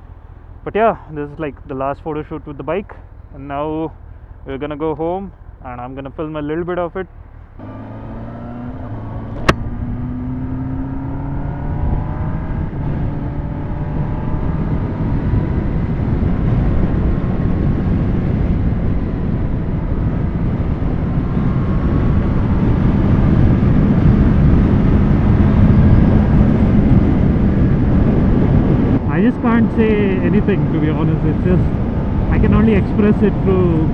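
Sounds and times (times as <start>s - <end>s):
motorcycle engine accelerating: 7.0s - 33.9s
rushing wind: 7.2s - 33.9s
sharp click: 9.3s - 9.7s.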